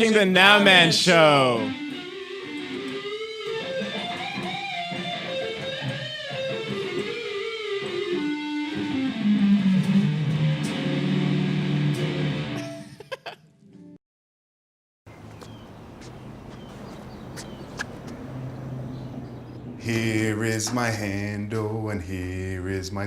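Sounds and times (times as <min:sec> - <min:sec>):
guitar-led rock music: 0:00.0 - 0:13.0.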